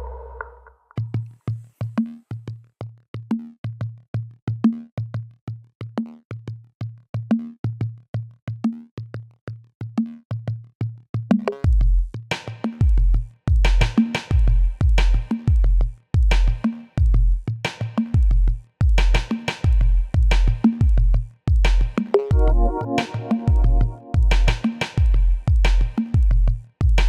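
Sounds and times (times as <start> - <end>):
heavy bass line: 22.3 - 25.5
electronic music with drum-machine beat: 22.3 - 25.7.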